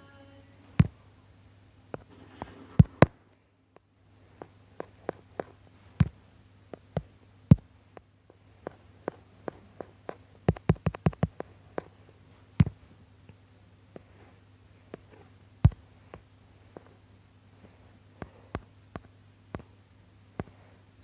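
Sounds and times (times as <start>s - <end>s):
faint low hum: 0.0s - 21.0s
sharp clicks and taps: 2.8s - 12.0s, 18.2s - 20.6s.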